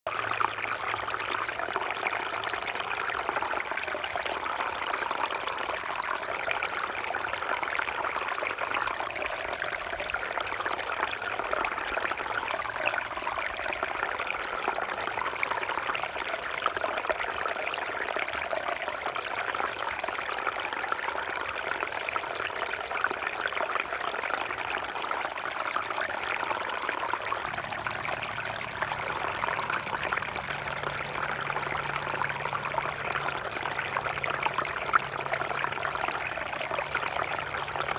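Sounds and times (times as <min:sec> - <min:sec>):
small waterfall splashing: 0:00.1 - 0:37.9.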